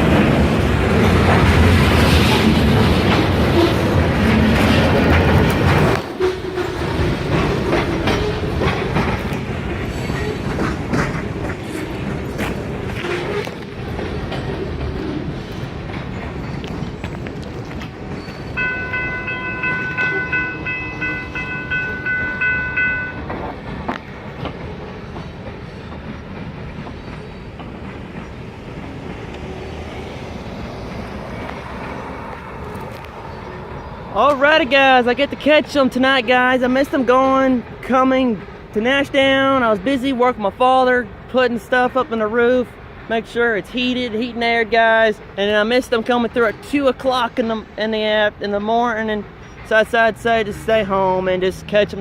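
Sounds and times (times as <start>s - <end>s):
train wheels clacking over rail joints: 0.0s - 33.2s
low train rumble: 0.0s - 52.0s.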